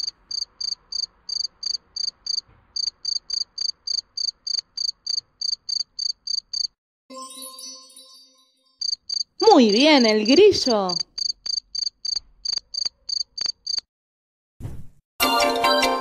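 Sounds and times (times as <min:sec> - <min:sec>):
cricket chirping: 0:00.0 - 0:06.8, 0:08.8 - 0:13.9.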